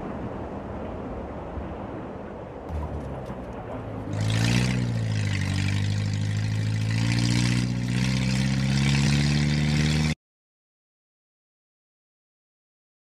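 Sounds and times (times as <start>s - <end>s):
car engine revving: 2.7s - 10.2s.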